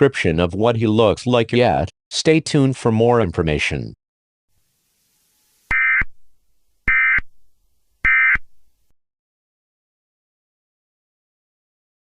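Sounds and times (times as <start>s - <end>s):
short data tone bursts: 5.7s - 6.1s.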